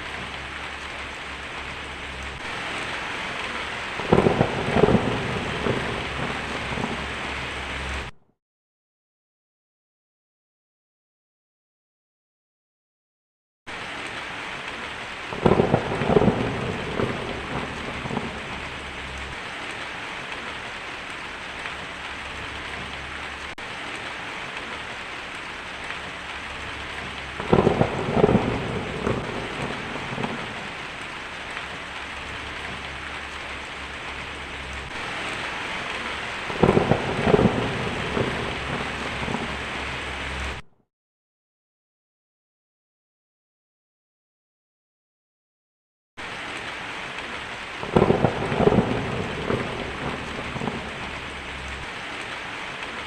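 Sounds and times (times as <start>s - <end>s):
heavy rain: 0.0s - 8.2s, 13.7s - 40.6s, 46.2s - 53.0s
thunderclaps: 2.3s - 7.4s, 15.3s - 20.6s, 25.6s - 40.6s, 47.8s - 53.0s.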